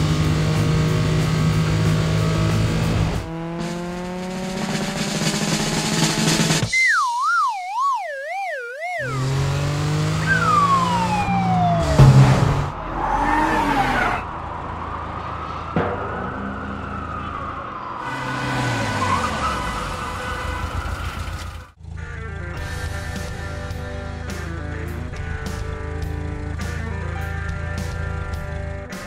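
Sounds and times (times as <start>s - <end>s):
car engine running: 0.0s - 6.7s, 9.0s - 29.0s
falling whistle: 6.7s - 9.2s, 10.2s - 12.4s
warbling tone dropping in pitch: 6.7s - 9.6s, 10.2s - 14.2s
thump: 12.0s - 12.8s, 15.8s - 17.6s.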